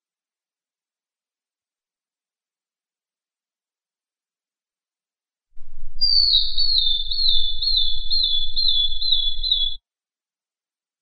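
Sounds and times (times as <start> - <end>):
faint low hum: 5.6 - 9.8
bird whistled calls: 5.8 - 9.8.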